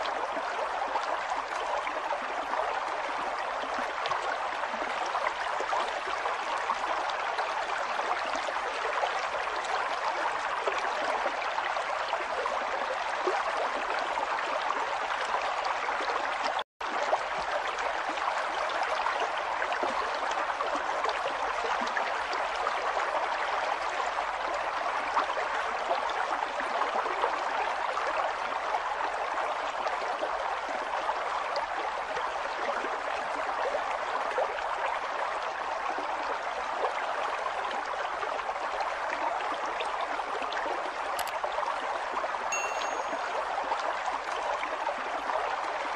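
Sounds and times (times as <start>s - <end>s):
river water rushing: 42.5s - 43.4s.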